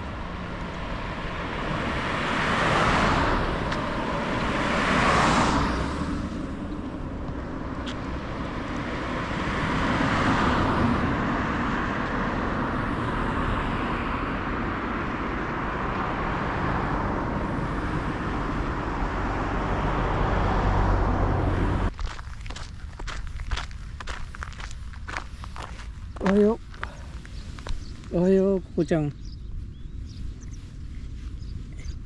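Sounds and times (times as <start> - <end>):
car road noise: 0.0 - 32.0.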